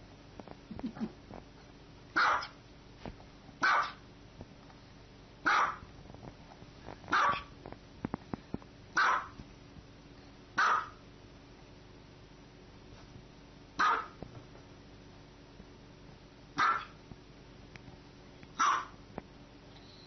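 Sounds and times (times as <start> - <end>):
small dog barking: 2.2 - 2.6, 3.6 - 4.0, 5.4 - 5.9, 7.1 - 7.5, 9.0 - 9.4, 10.6 - 11.0, 13.8 - 14.2, 16.6 - 17.0, 18.6 - 19.0.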